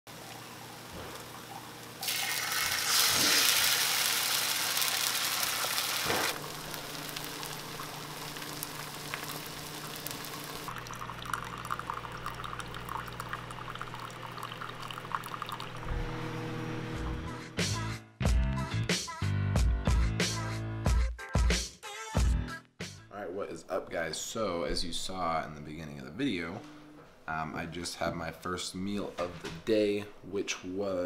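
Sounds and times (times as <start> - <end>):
eggs sizzling in a pan: 0.1 - 15.7
low steady hum: 6.3 - 17.4.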